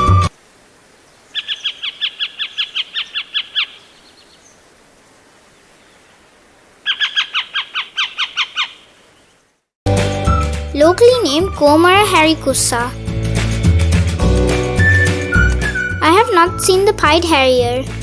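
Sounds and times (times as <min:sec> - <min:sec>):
bird of prey chattering calls: 0:01.3 - 0:04.4, 0:06.8 - 0:09.0.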